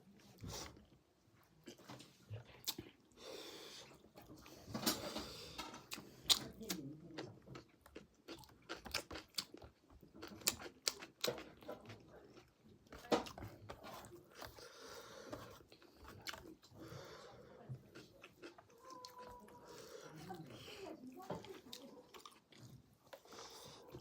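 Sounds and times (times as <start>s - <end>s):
person chewing and crunching: 5.8s - 17.0s, 17.8s - 24.0s.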